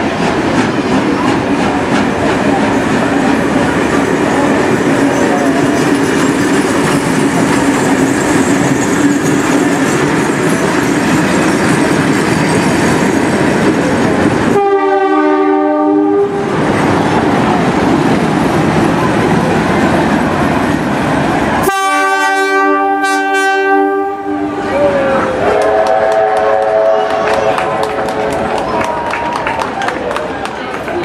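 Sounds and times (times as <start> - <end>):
steam locomotive exhaust and rolling: 0.0 - 31.0
steam whistle blasts: 14.6 - 16.4, 21.6 - 24.7, 25.4 - 27.6.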